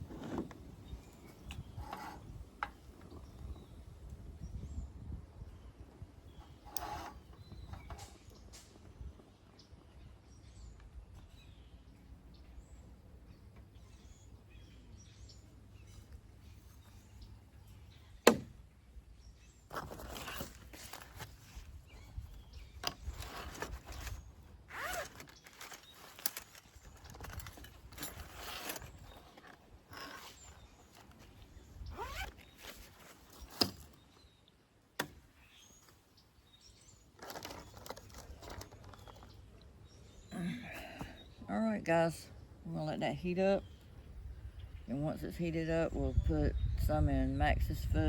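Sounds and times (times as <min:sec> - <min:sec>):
rustling and scraping of gear: 0:00.0 - 0:03.7, 0:06.3 - 0:10.7, 0:19.4 - 0:34.4, 0:35.4 - 0:41.3.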